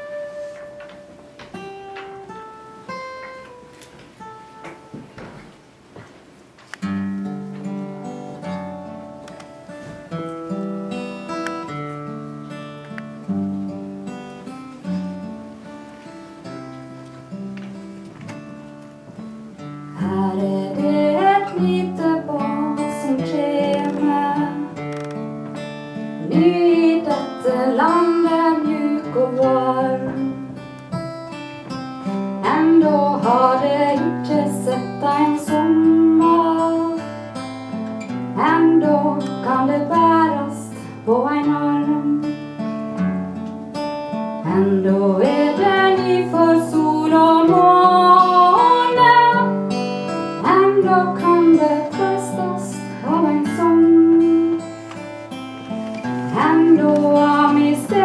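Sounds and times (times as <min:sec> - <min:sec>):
acoustic guitar strumming: 0:00.0 - 0:06.1, 0:06.7 - 0:58.0
woman singing: 0:20.0 - 0:24.8, 0:26.2 - 0:30.7, 0:32.4 - 0:37.4, 0:38.3 - 0:42.5, 0:44.4 - 0:54.8, 0:56.3 - 0:58.0.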